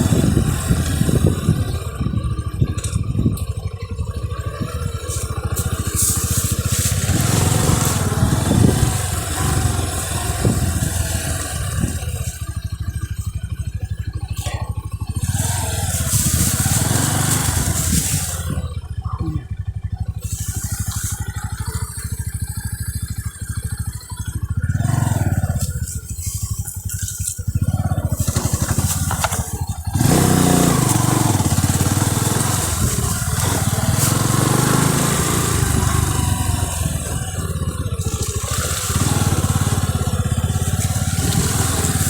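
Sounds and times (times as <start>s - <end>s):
bike rattles: 0.0s - 42.0s
motorcycle engine running: 0.0s - 42.0s
hiss: 20.2s - 22.2s.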